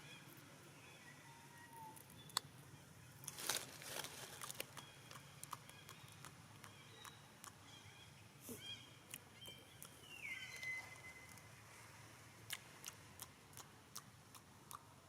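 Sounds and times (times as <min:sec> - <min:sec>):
rustling and crackling: 0:03.2 - 0:04.8
thin high chirping calls: 0:04.7 - 0:11.5.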